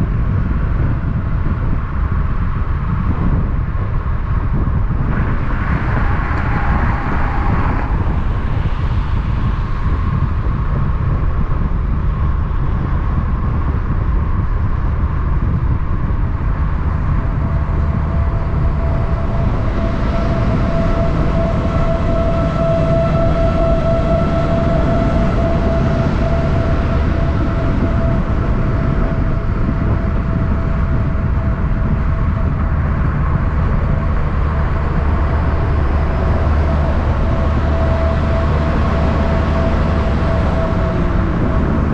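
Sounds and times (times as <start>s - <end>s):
trucks rumbling on road: 0.0s - 41.9s
vehicle whine: 0.0s - 41.9s.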